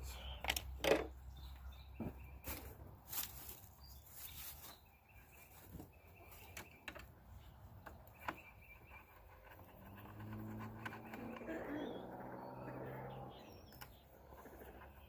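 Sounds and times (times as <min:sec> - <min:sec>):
bird chirps: 0:03.6 - 0:15.0.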